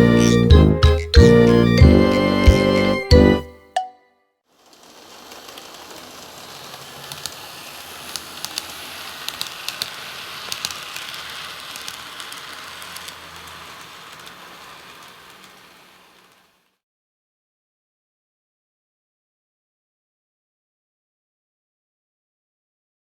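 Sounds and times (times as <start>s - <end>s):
wheels clicking over rail joints: 4.6s - 16.7s
model train motor whir: 4.6s - 16.8s.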